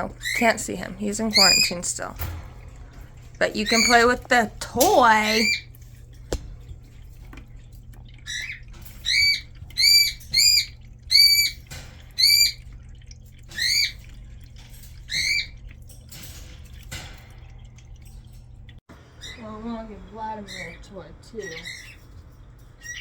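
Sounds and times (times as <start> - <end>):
parrot calling: 3.5 - 4.2, 5.1 - 5.7, 8.3 - 11.6, 12.2 - 12.6, 13.5 - 14.0.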